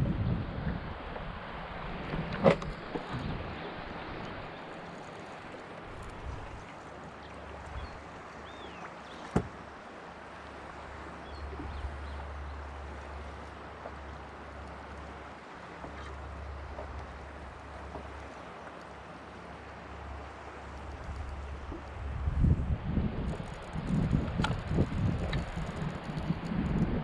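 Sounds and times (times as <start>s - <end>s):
wind rumble on microphone: 0.0s - 4.6s, 5.8s - 6.7s, 7.5s - 8.7s, 10.8s - 13.4s, 20.1s - 27.0s
water around kayak: 0.0s - 27.0s.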